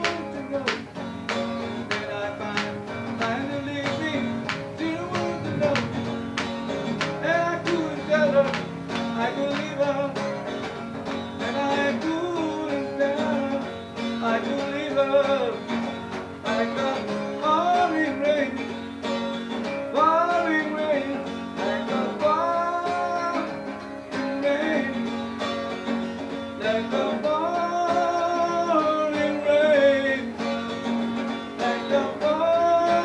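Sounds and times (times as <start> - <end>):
person singing: 0.0 - 1.0, 1.7 - 6.1, 6.8 - 10.5, 19.9 - 25.1, 26.6 - 30.8, 31.6 - 33.0
acoustic guitar strumming: 0.0 - 33.0.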